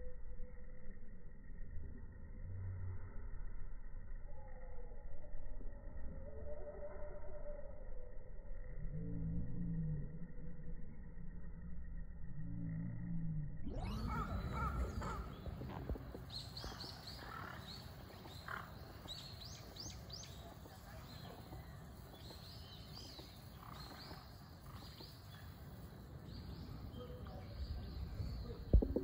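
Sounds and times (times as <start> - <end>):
low background rumble: 7.5 - 29.0
small birds chirping: 13.7 - 29.0.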